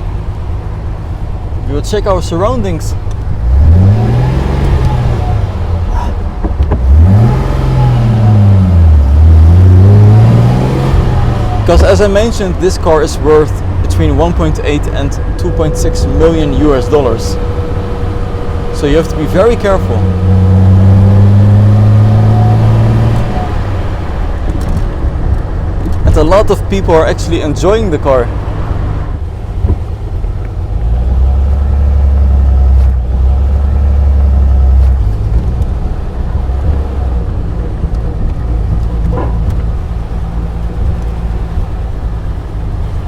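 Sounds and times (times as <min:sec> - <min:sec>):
car engine accelerating: 0:00.0 - 0:43.0.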